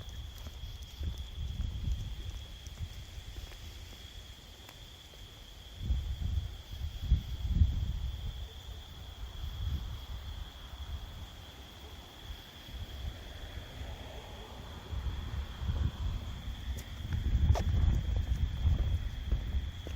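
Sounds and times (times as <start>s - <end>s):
crickets chirping: 0.0s - 19.9s
rumbling thumps on microphone: 16.7s - 19.9s.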